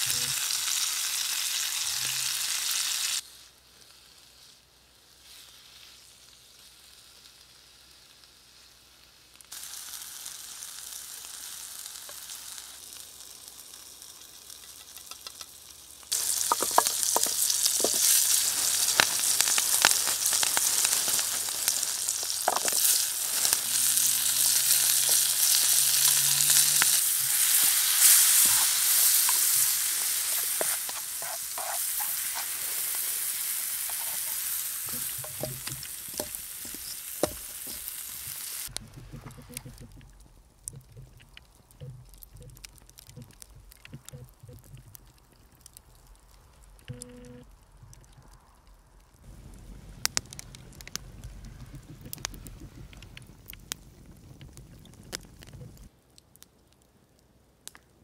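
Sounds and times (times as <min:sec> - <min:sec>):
food sizzling in a hot pan: 0:00.0 - 0:38.7
oil popping and crackling: 0:09.4 - 0:57.0.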